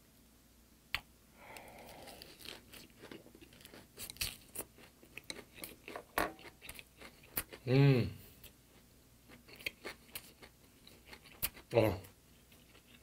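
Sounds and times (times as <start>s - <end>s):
person chewing crunchy food: 1.5s - 7.7s, 8.4s - 11.8s, 12.4s - 13.0s.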